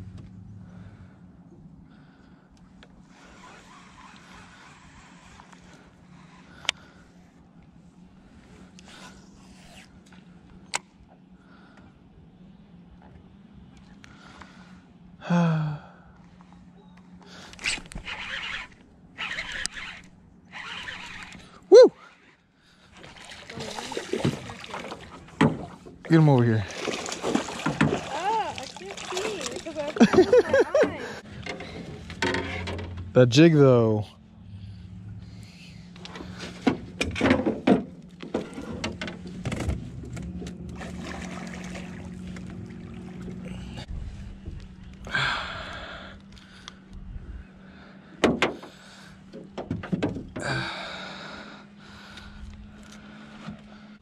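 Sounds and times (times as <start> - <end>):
rustling and fishing reel noise: 2.7 - 10.7, 17.0 - 23.7, 28.8 - 33.2, 51.8 - 54.0
person exclaiming: 21.7 - 22.0, 28.1 - 31.2
steady low hum: 37.9 - 49.6.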